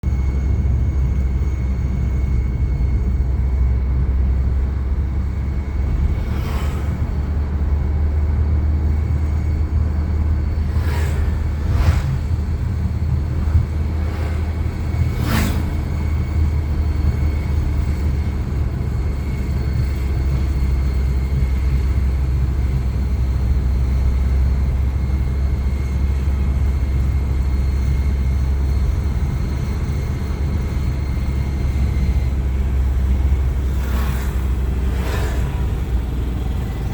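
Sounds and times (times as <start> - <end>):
rickshaw engine running: 0.0 - 36.9
rush of air: 5.8 - 8.0, 9.7 - 16.6, 33.5 - 36.9.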